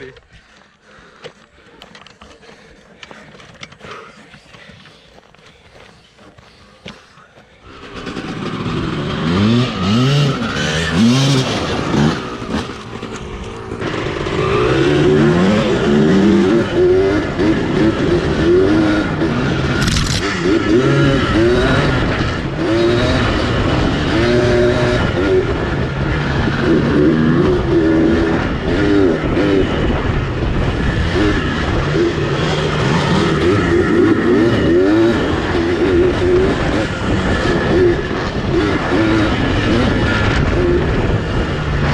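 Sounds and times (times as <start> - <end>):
two-stroke engine revving: 7.6 - 41.9.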